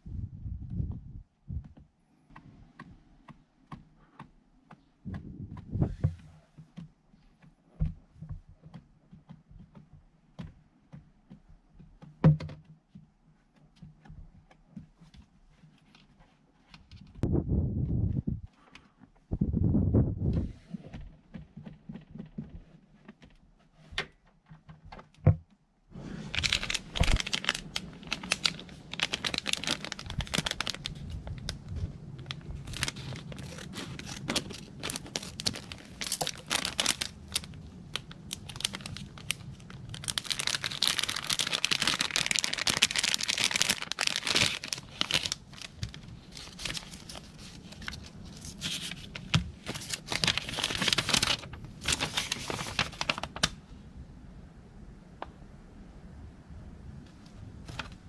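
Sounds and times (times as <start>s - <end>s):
crinkling and tearing: 26.0s - 53.6s, 57.6s - 58.0s.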